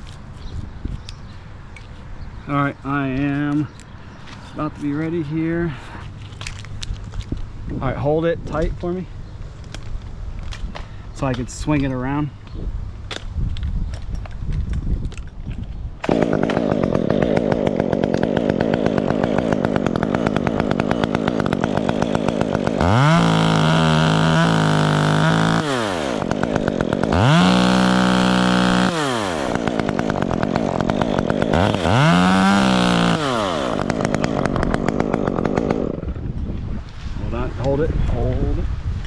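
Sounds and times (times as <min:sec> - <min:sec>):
chainsaw idling and revving: 0:16.0 - 0:36.3.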